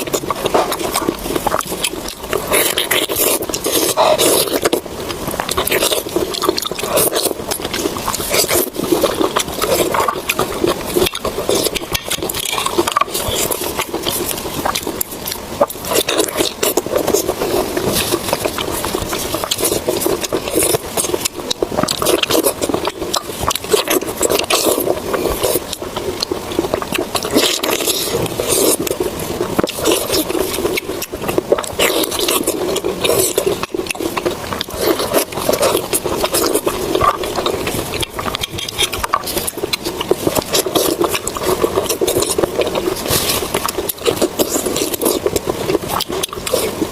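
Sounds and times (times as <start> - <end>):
chewing with clicks and smacks: 0.0 - 46.9.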